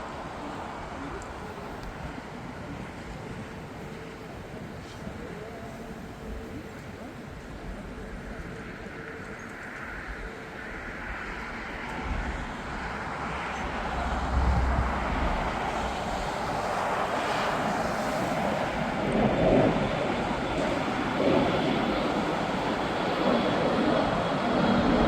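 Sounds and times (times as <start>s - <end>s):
jet engines rushing: 10.5s - 25.0s
faint high whine: 10.9s - 19.1s.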